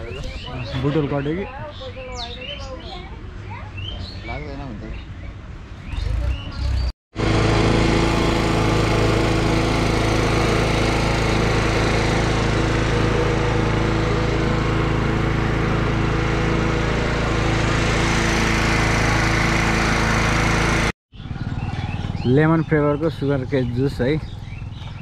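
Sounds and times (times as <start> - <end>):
juice crusher machine droning: 7.2 - 20.9.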